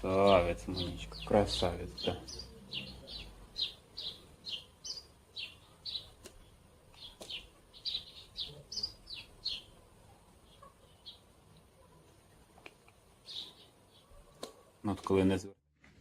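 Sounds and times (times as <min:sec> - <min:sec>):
bird chirping: 0:00.0 - 0:14.8.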